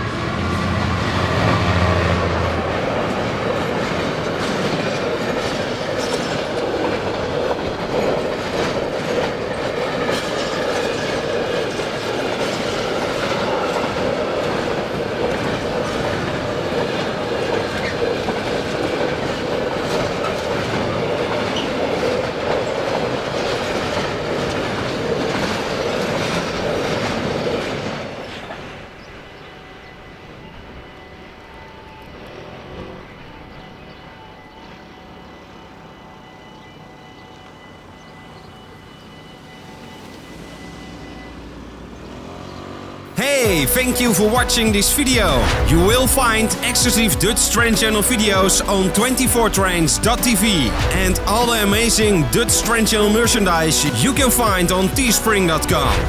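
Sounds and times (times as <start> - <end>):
train wheels rushing on rails: 0.0 - 56.0
wheels clacking over rail joints: 0.3 - 29.5.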